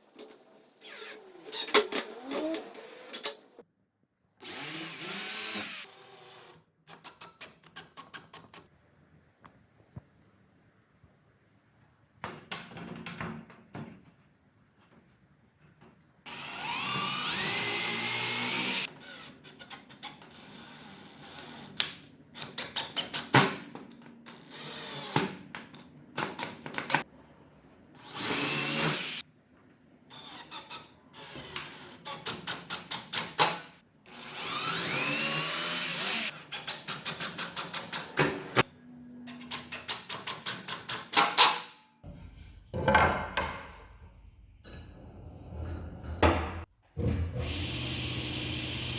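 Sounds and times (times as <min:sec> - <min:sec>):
power drill whining: 0:00.8 - 0:03.1, 0:04.4 - 0:07.2, 0:16.3 - 0:21.8, 0:24.3 - 0:25.3, 0:34.1 - 0:36.4, 0:47.4 - 0:48.9.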